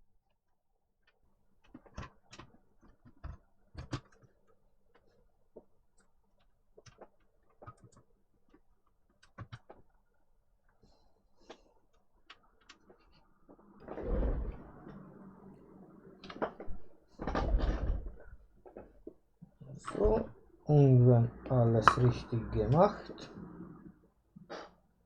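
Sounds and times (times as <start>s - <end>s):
plastic laptop parts clicking: 1.6s - 5.1s, 6.4s - 10.0s.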